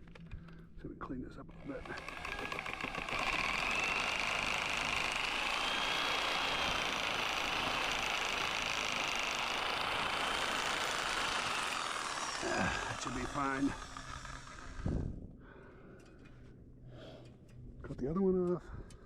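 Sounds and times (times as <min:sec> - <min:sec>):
power tool whining on timber: 0:01.5 - 0:15.2.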